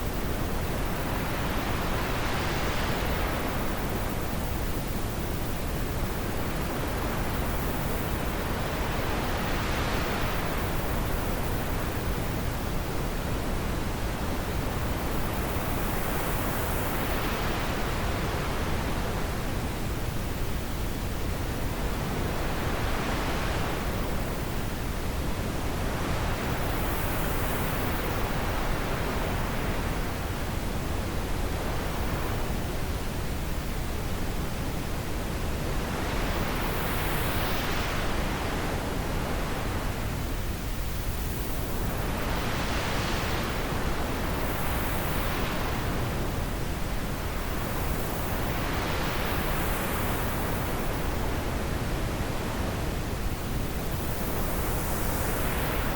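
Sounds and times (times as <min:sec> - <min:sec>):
rushing wind with gusts: 0:00.0 - 0:55.9.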